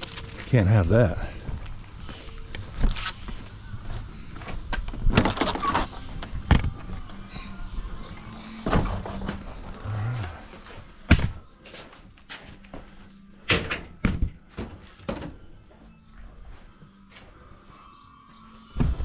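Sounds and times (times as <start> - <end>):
sharp thunks and knocks: 11.1 - 11.4.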